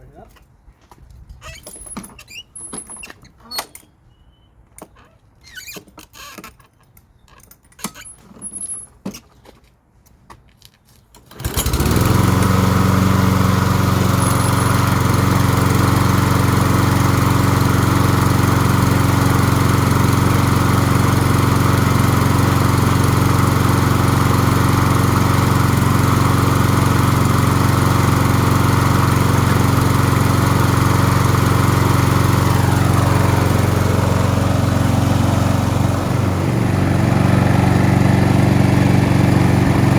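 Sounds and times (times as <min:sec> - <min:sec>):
lawn mower engine running: 0:11.2 - 0:39.9.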